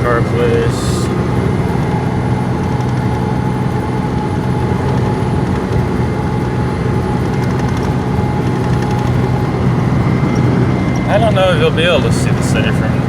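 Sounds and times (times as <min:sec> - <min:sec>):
road noise: 0:00.0 - 0:13.0
thin steady whine: 0:00.0 - 0:13.0
truck engine drone: 0:00.0 - 0:13.0.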